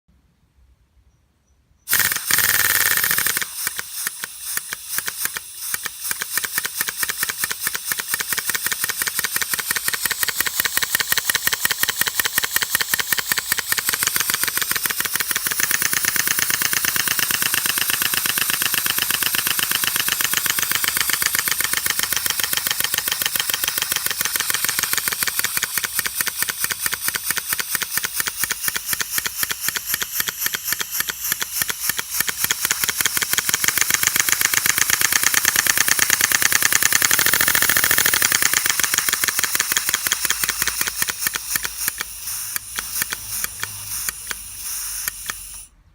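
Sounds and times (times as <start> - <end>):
pump exhaust hissing puffs: 1.9 - 45.9.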